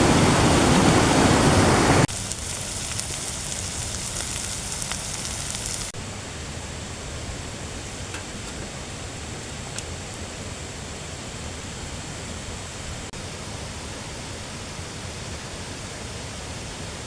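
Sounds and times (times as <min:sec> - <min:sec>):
running water: 0:00.0 - 0:06.0.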